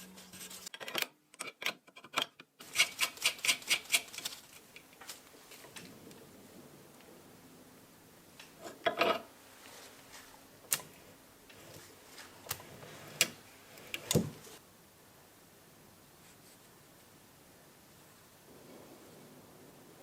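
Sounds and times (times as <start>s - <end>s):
clicks and knocks of tools handled: 0.7s - 5.9s.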